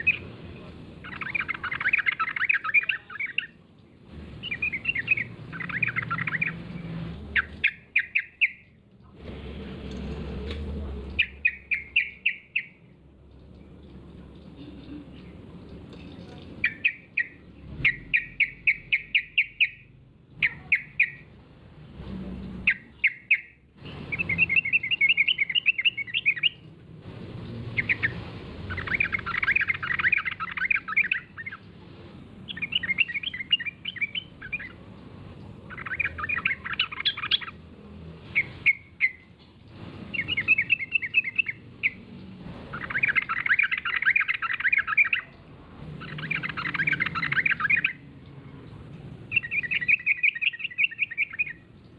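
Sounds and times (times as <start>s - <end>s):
bird chattering song: 0.0s - 3.6s, 4.4s - 8.8s, 11.1s - 12.9s, 16.2s - 21.3s, 22.5s - 26.7s, 27.7s - 31.7s, 32.4s - 34.8s, 35.4s - 37.7s, 38.3s - 39.4s, 40.1s - 42.1s, 42.7s - 48.7s, 49.3s - 51.9s.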